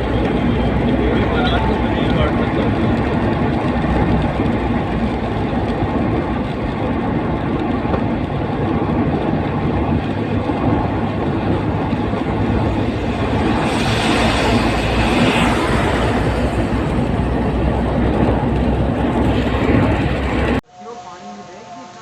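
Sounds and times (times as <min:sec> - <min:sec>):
vehicle engine and road rumble: 0:00.0 - 0:21.9.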